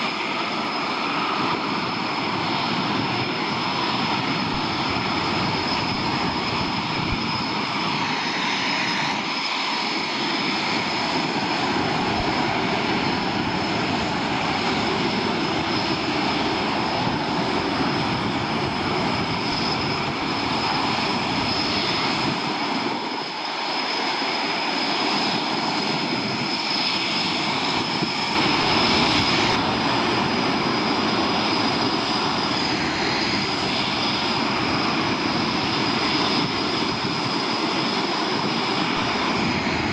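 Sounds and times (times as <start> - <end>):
military jet engines roaring: 0.0 - 39.9.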